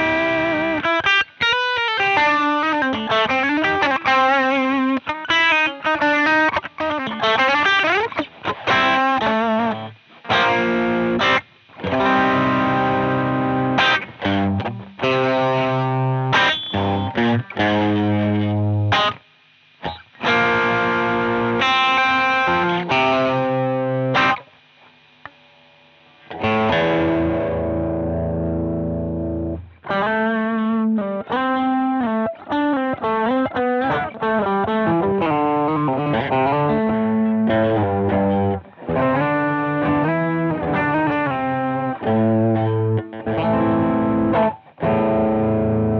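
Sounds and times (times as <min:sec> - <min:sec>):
distorted electric guitar: 0:00.0 - 0:45.9.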